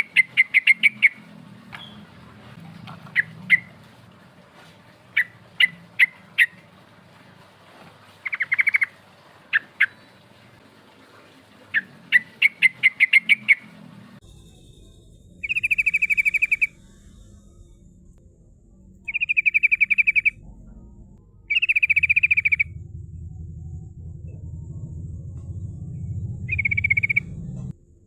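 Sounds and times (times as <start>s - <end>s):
bulbul calling: 8.2s - 10.0s, 15.4s - 17.2s, 19.1s - 20.5s, 21.4s - 23.0s, 26.0s - 27.6s.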